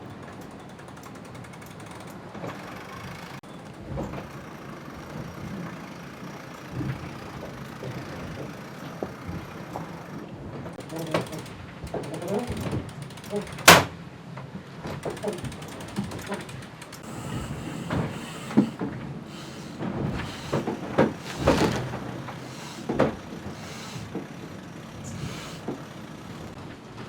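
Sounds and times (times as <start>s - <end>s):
mechanical knocks and clicks: 10.8s - 13.9s, 14.9s - 17.1s
steady rush of sailboat: 17.0s - 26.6s.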